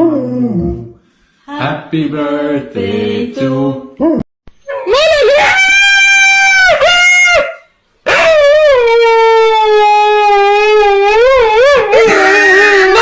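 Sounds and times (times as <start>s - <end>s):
dog howling: 4.0s - 13.0s.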